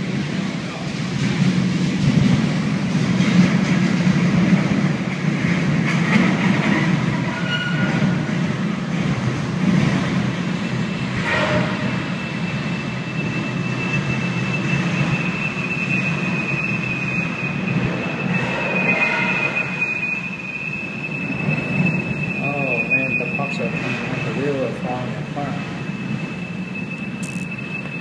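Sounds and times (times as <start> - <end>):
freight train rumbling and grinding: 0.0 - 28.0
high metallic squeal: 6.9 - 8.4, 10.1 - 28.0.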